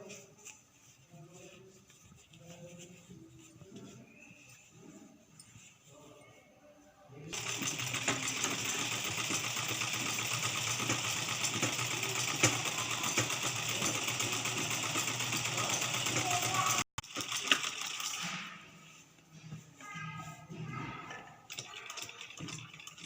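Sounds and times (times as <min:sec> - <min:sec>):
sewing machine stitching fabric: 0:07.3 - 0:18.7, 0:21.0 - 0:23.0.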